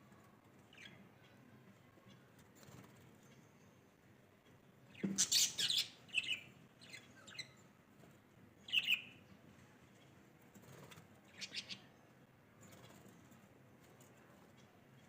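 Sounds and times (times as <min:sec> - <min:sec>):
birds chirping: 0:00.6 - 0:07.7, 0:08.6 - 0:10.2, 0:10.8 - 0:13.5.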